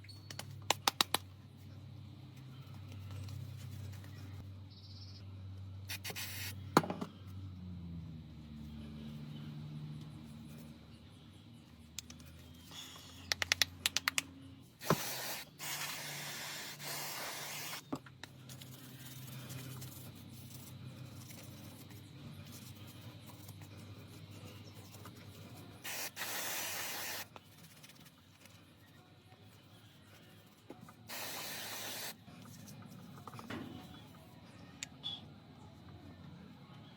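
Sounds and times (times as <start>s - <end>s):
spray hissing: 14.8s - 17.8s, 25.8s - 27.3s, 31.1s - 32.2s.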